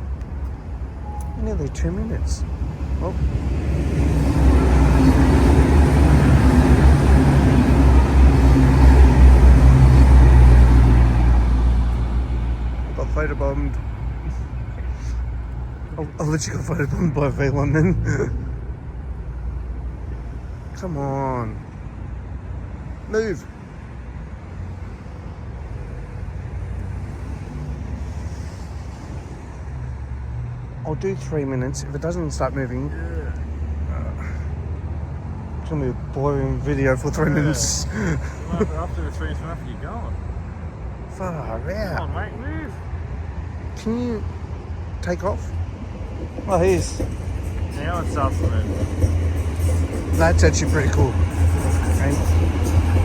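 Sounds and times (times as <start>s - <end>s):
low vehicle rumble: 0.0s - 23.1s
diesel train passing: 0.0s - 53.0s.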